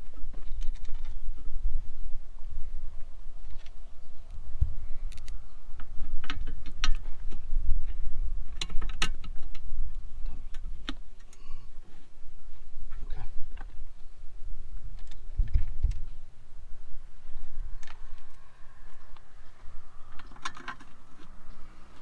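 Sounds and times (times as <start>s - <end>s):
low rumble: 15.7s - 22.0s.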